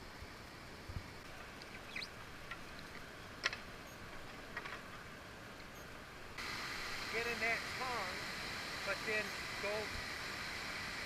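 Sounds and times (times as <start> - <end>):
small clicks and drips: 1.6 - 3.6
river water rushing: 5.1 - 11.0.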